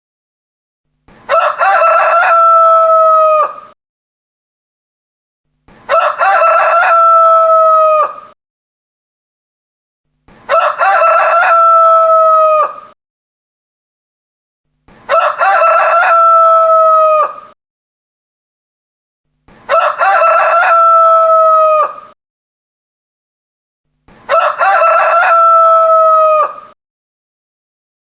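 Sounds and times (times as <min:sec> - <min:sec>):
rooster crowing: 0:01.3 - 0:03.8, 0:05.9 - 0:08.4, 0:10.5 - 0:13.0, 0:15.1 - 0:17.6, 0:19.7 - 0:22.2, 0:24.3 - 0:26.8.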